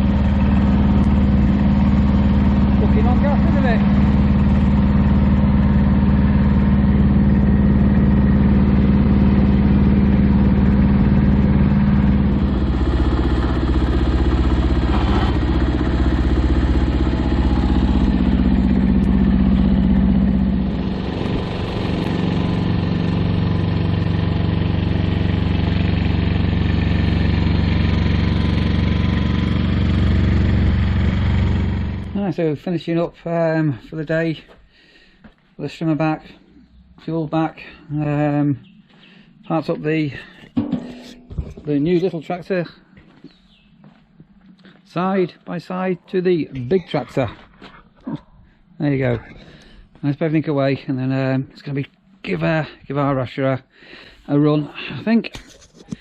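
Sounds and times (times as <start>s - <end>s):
mini tractor engine running: 0.0s - 32.2s.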